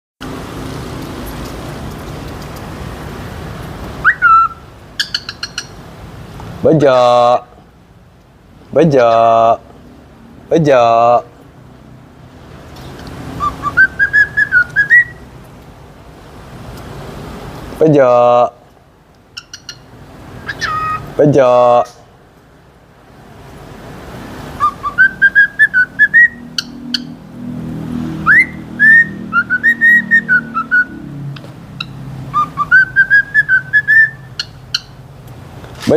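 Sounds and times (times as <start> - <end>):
bird whistling swooping note: 4.0 - 5.5, 13.4 - 15.2, 24.6 - 27.2, 28.2 - 31.1, 32.3 - 34.3
bird chirping: 4.0 - 5.8, 12.7 - 15.3, 19.2 - 21.2, 24.6 - 27.3, 28.2 - 35.1.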